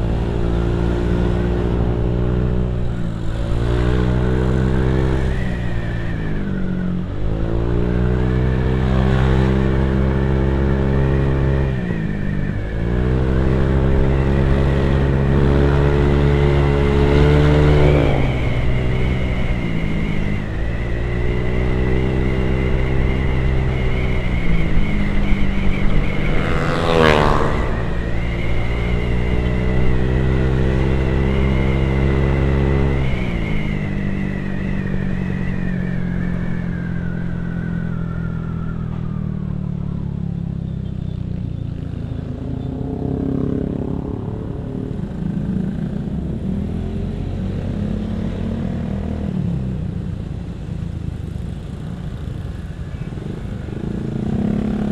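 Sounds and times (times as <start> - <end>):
high whine: 4.3 - 40.6
sweeping whoosh: 11.7 - 39.9
motorcycle engine running: 13.2 - 32.9.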